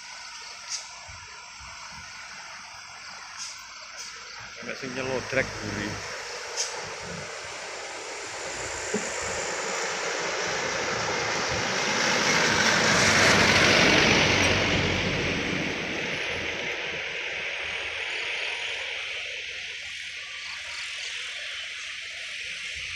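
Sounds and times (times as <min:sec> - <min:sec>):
vehicle passing by: 0:04.6 - 0:17.6.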